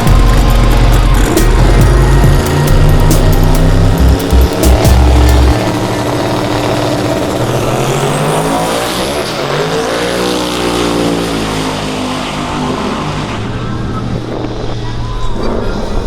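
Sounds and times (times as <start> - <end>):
truck engine running hard: 0.0 - 16.0.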